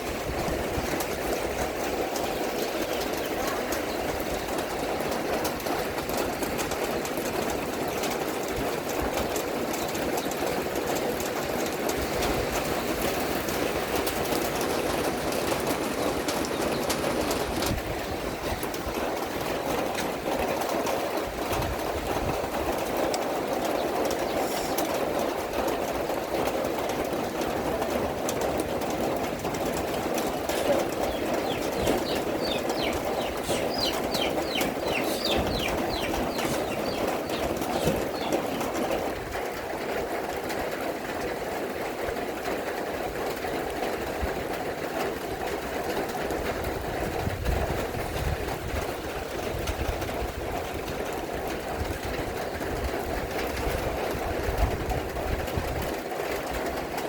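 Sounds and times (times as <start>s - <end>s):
steady rain falling: 0.0s - 57.0s
small birds chirping: 1.3s - 7.0s, 9.4s - 20.0s, 22.4s - 25.7s, 29.1s - 39.1s.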